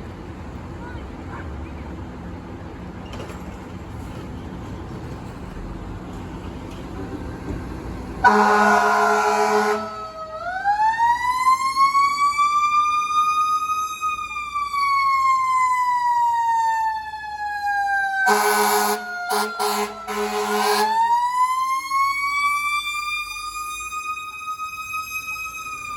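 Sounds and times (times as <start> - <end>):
engine and road noise: 0.0 - 25.9
fire engine air horn: 8.2 - 10.3, 18.0 - 21.2.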